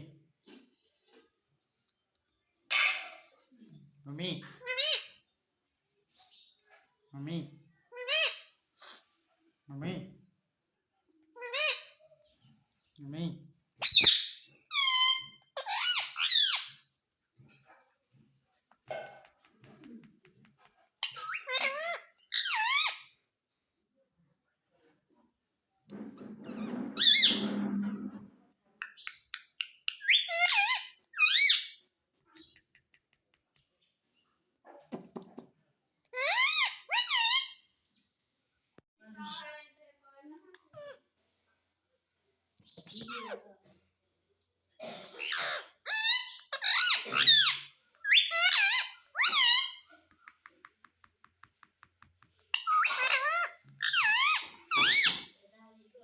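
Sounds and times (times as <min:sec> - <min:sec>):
parrot squawking and muttering: 0:02.7 - 0:03.4, 0:04.4 - 0:05.2, 0:07.9 - 0:09.0, 0:11.3 - 0:12.1, 0:13.8 - 0:16.9, 0:21.0 - 0:23.2, 0:26.3 - 0:28.2, 0:29.9 - 0:32.6, 0:36.0 - 0:37.7, 0:40.6 - 0:41.1, 0:42.8 - 0:43.7, 0:44.8 - 0:50.4, 0:52.4 - 0:55.4
parrot squeaky whistling calls: 0:30.0 - 0:31.8, 0:45.9 - 0:49.9, 0:52.5 - 0:55.3.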